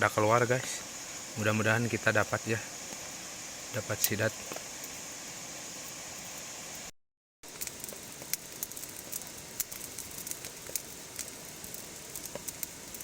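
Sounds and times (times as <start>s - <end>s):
steady rain hiss: 0.0s - 6.9s, 7.5s - 13.0s
rain drops ticking: 7.5s - 13.0s.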